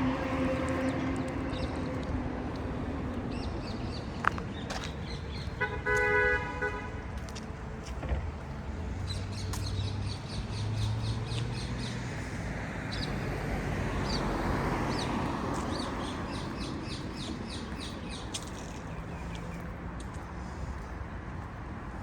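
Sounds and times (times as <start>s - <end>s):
vehicle passing: 0.0s - 4.4s, 7.2s - 21.9s
street traffic: 0.0s - 22.0s
birds chirping: 8.4s - 21.3s.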